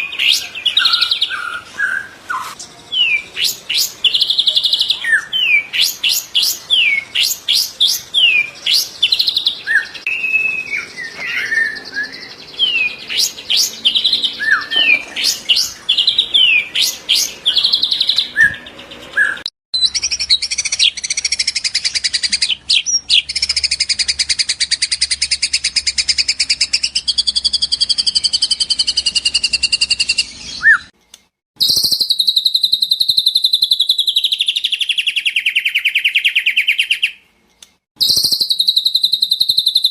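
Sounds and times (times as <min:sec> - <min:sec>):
bird singing whistles and trills: 0:00.0 - 0:30.9, 0:31.6 - 0:37.2, 0:38.0 - 0:39.9.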